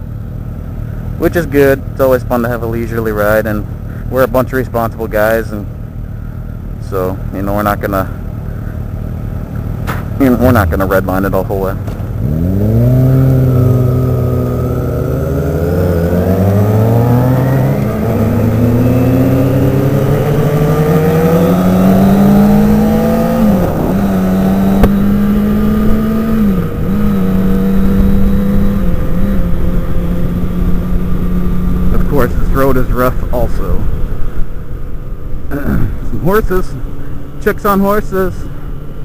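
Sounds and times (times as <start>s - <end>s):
motorcycle engine accelerating: 0.0s - 39.0s
road noise: 0.0s - 39.0s
wind noise: 16.4s - 32.6s.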